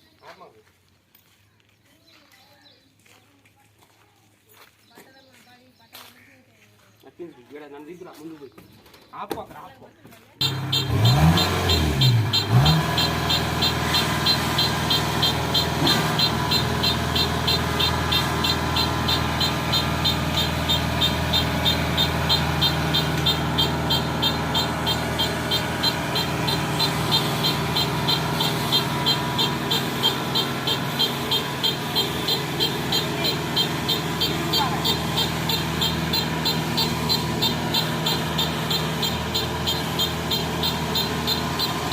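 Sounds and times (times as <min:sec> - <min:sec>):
diesel engine running and revving: 0:10.4 - 0:41.9.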